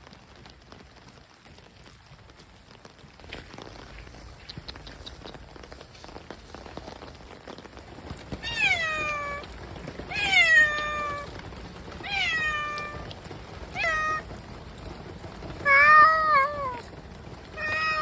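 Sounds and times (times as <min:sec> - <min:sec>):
rain pattering: 0:00.0 - 0:18.0
cat meowing: 0:08.4 - 0:11.4, 0:12.0 - 0:14.4, 0:15.6 - 0:16.9, 0:17.6 - 0:18.0.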